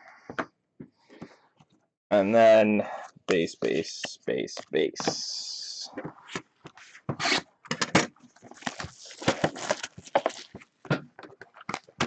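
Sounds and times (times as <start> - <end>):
cards scraping and rustling: 8.4 - 10.7.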